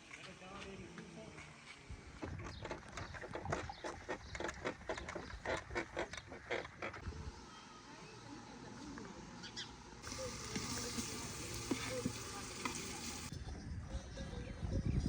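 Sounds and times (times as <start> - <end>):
food sizzling in hot oil: 10.0 - 13.3.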